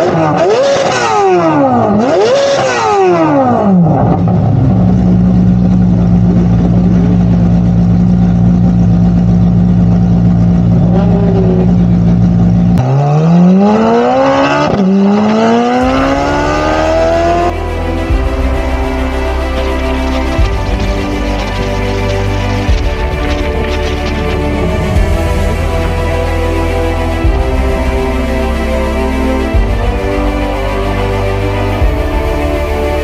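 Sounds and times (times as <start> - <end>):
sports car engine revving: 0.0 - 33.0
music: 15.6 - 33.0.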